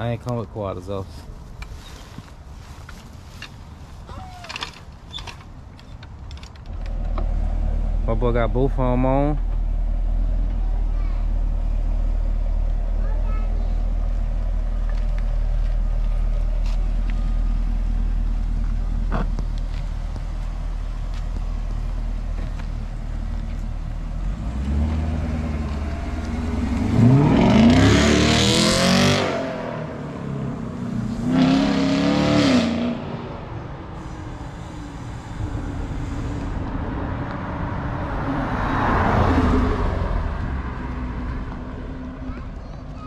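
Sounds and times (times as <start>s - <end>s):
car engine idling: 6.7s - 27.2s
car engine revving: 13.9s - 33.5s
car driving past: 14.2s - 33.4s, 34.0s - 42.0s.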